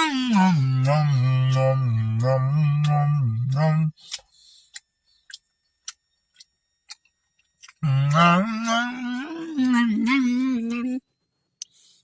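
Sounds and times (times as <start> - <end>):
low howling voice: 0.0 - 3.9, 7.8 - 11.0.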